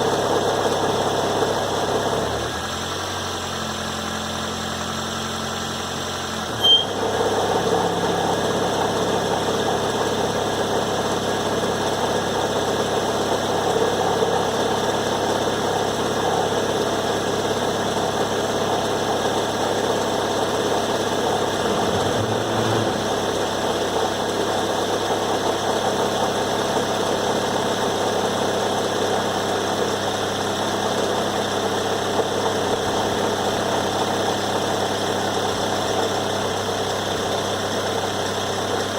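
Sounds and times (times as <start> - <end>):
car engine idling: 0.0 - 38.9
rough buzzing noise: 21.6 - 23.4.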